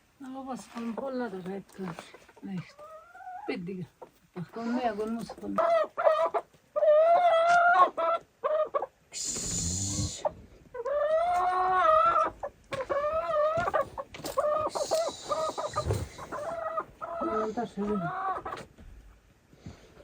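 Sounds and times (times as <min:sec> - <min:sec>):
chickens clucking and calling: 0:00.8 - 0:20.0
noisy rustle: 0:14.9 - 0:16.4.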